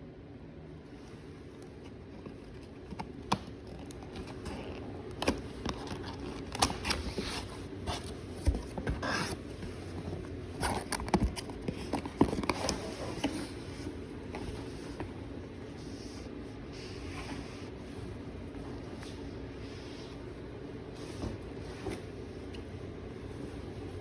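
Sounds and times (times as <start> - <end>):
packaging scraping rustles: 1.8 - 14.0.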